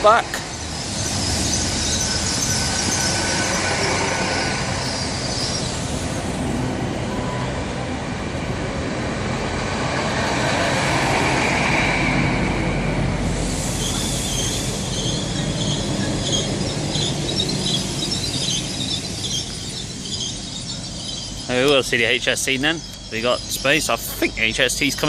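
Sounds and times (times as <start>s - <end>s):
train rumble and rail noise: 0.0s - 25.0s
high-pitched wheel squeal: 0.4s - 6.2s, 11.2s - 21.6s.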